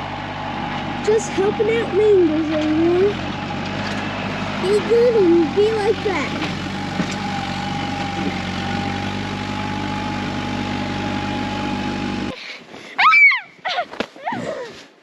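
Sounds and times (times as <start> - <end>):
tractor engine idling: 0.0 - 12.3
constant whine: 0.0 - 12.4
high-pitched falling cry: 13.0 - 14.7.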